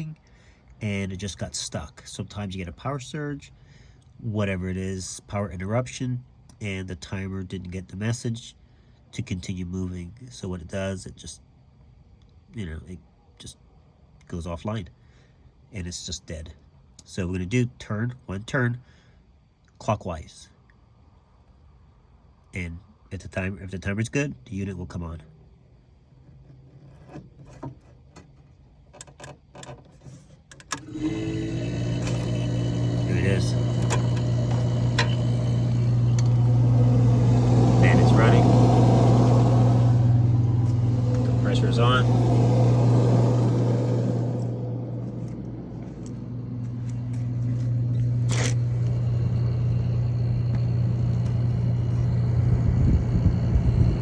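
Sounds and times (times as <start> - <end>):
refrigerator humming: 26.2 - 54.0.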